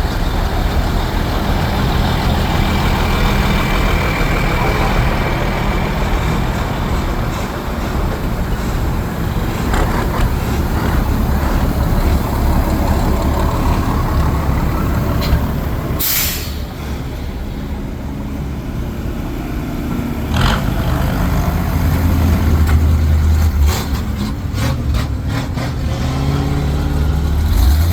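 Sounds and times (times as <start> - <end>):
fire truck engine rumbling: 0.0 - 27.9
air brake hiss: 16.0 - 16.9.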